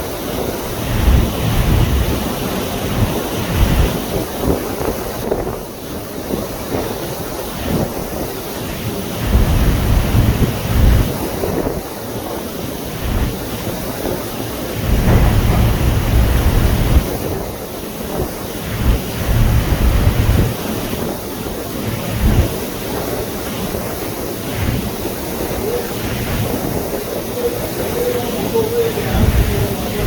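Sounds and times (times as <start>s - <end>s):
rushing wind and water: 0.0s - 30.0s
wind buffeting microphone: 0.0s - 30.0s.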